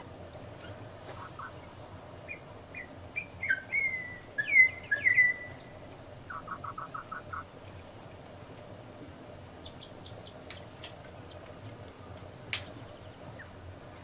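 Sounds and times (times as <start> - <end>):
birds chirping: 0.0 - 7.5
bird whistled notes: 2.3 - 5.7.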